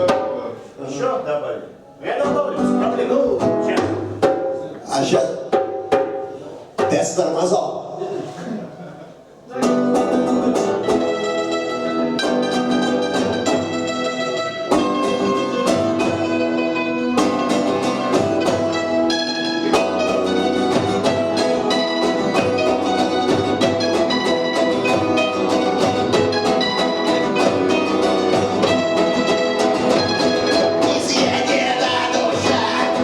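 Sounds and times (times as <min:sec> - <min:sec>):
steady drum beat: 0:03.5 - 0:07.3, 0:17.2 - 0:33.0
guitar chords: 0:09.6 - 0:33.0.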